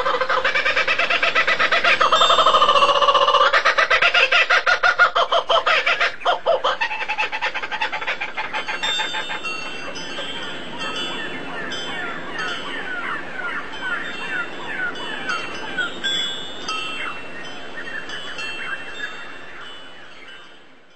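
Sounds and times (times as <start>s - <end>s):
bird chattering calls: 0.0s - 16.0s.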